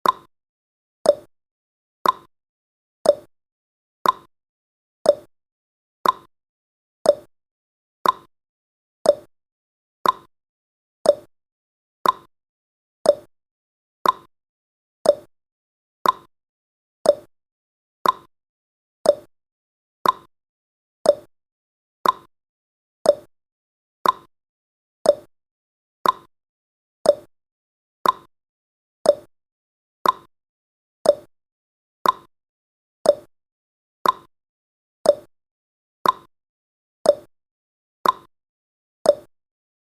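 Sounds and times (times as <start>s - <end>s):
clock ticking: 2.0s - 2.3s, 4.0s - 4.3s, 6.0s - 6.3s, 8.0s - 8.3s, 10.0s - 10.3s, 12.0s - 12.3s, 14.0s - 14.3s, 15.1s - 15.3s, 16.0s - 16.3s, 18.0s - 18.3s, 19.1s - 19.3s, 20.0s - 20.3s, 21.1s - 21.3s, 22.0s - 22.3s, 24.0s - 24.3s, 26.0s - 26.3s, 28.0s - 28.3s, 29.1s - 29.3s, 30.0s - 30.3s, 31.1s - 31.3s, 32.0s - 32.3s, 33.1s - 33.3s, 34.0s - 34.3s, 35.1s - 35.3s, 36.0s - 36.3s, 38.0s - 38.3s, 39.1s - 39.3s.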